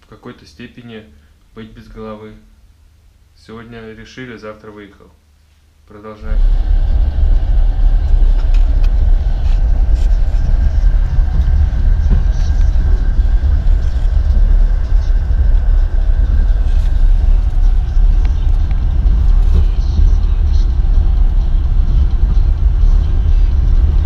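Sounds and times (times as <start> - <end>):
train running at speed: 6.2 - 24.0.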